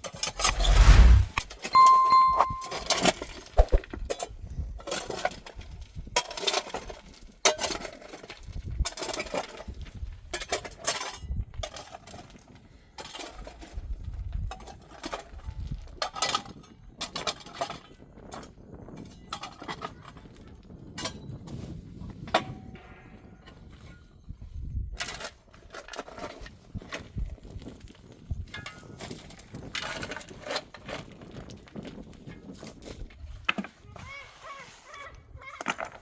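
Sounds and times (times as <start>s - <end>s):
short ringing clink: 1.8s - 3.0s.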